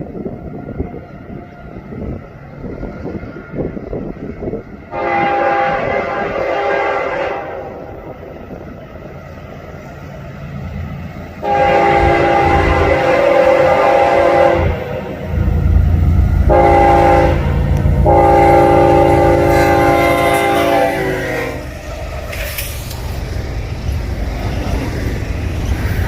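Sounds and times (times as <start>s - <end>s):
low rumble of approaching train: 0.0s - 26.0s
locomotive air horn blasts: 4.9s - 8.0s, 11.4s - 15.5s, 16.4s - 21.8s.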